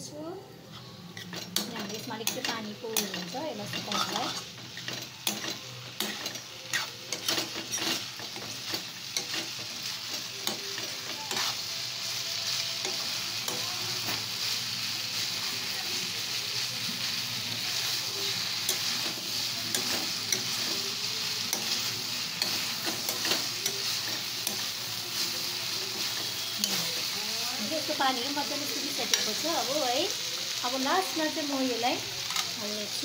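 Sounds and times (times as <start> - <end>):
noodles sizzling in a pan: 0.0 - 33.0
metal spoon clicking on pan: 1.2 - 9.4, 10.1 - 11.5, 18.6 - 20.8, 21.5 - 21.8, 32.3 - 32.6.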